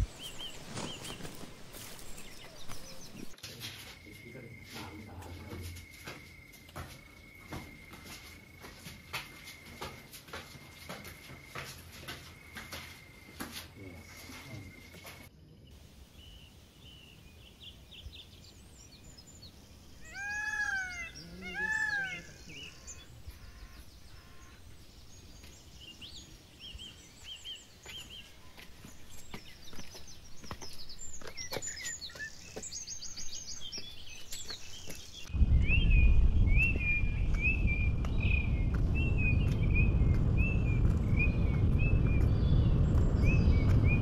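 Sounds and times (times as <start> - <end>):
birds chirping: 0.0 - 3.4, 4.0 - 44.0
loud drawn-out bird calls: 20.0 - 24.8
loud low rumble: 35.3 - 44.0.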